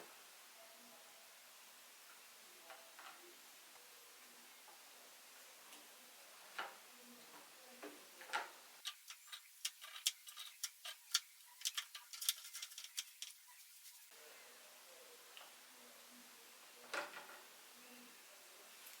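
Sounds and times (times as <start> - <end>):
light sharp clicks and taps: 6.6 - 13.4.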